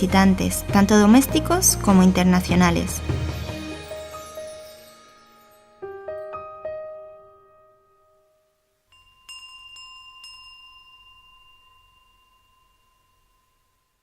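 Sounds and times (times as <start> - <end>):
piano notes: 0.0 - 8.6
small bell ringing: 8.9 - 14.0.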